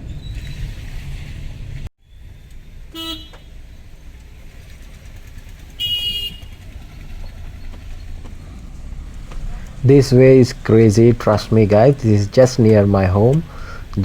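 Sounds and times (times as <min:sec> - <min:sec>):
low traffic rumble: 0:00.0 - 0:14.0
vehicle horn honks: 0:02.9 - 0:03.6, 0:05.8 - 0:06.7.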